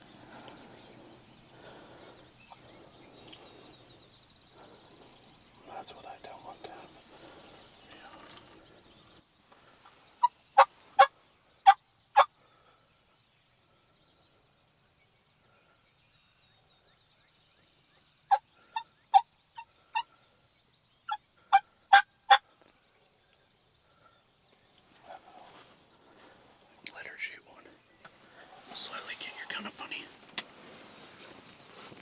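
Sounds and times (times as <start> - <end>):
wild turkey yelps: 10.2 - 12.3, 21.1 - 22.4.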